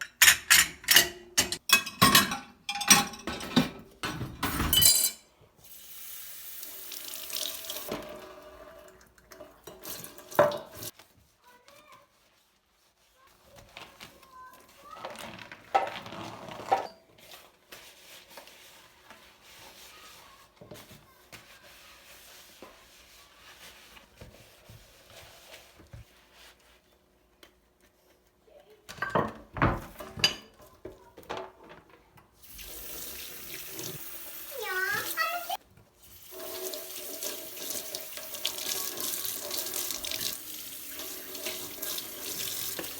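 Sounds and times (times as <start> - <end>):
dishes clattering in a sink: 0.0 - 5.4, 7.8 - 10.9, 28.9 - 32.0
tap water running: 5.6 - 10.9, 32.4 - 42.9.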